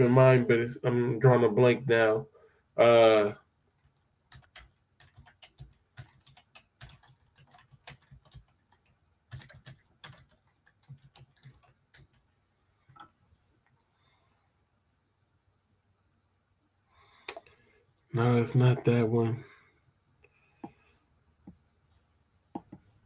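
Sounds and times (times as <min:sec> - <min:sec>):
faint keyboard typing: 0:03.7 - 0:12.3.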